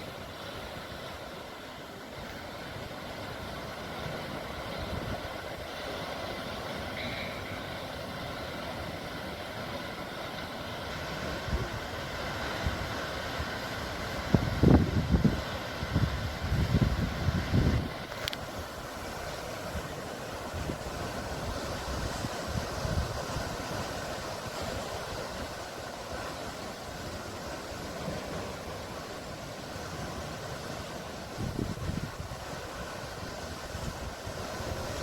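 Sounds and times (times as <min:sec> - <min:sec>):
sea surf hissing: 0:00.0 - 0:35.0.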